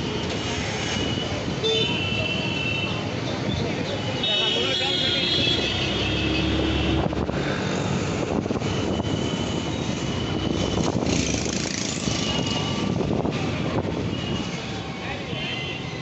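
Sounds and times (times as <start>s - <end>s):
tyre road noise: 0.0s - 16.0s
scooter engine: 9.3s - 12.9s.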